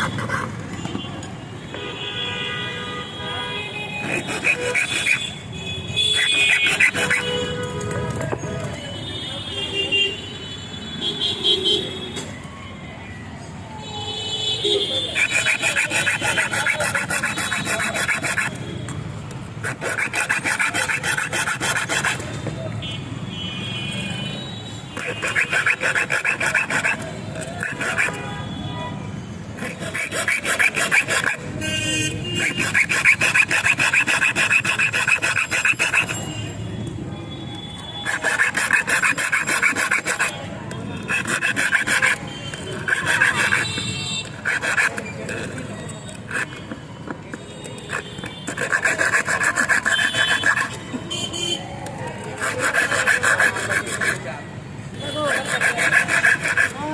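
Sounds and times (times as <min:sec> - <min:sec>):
metal filed by hand: 0:00.0 - 0:00.7, 0:03.8 - 0:08.4, 0:14.8 - 0:18.7, 0:19.5 - 0:22.7, 0:24.9 - 0:28.4, 0:29.5 - 0:36.4, 0:38.0 - 0:51.0, 0:52.1 - 0:56.9.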